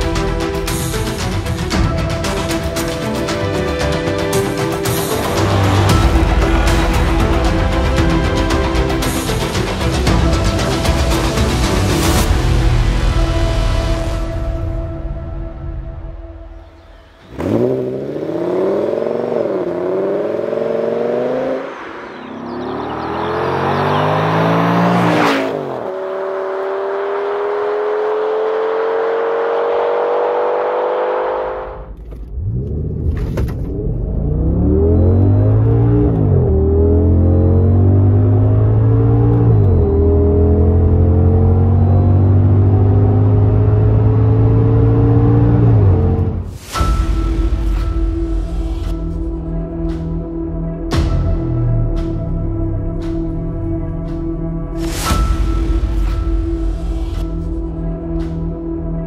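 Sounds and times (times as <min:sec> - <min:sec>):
car engine revving under acceleration: 0:17.2 - 0:46.4.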